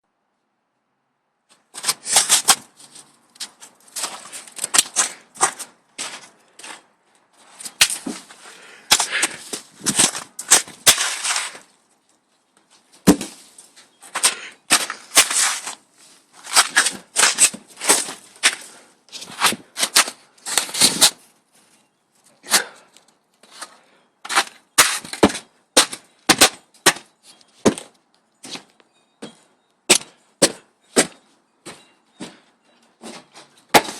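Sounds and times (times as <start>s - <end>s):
snow crunching: 7.4s - 11.7s.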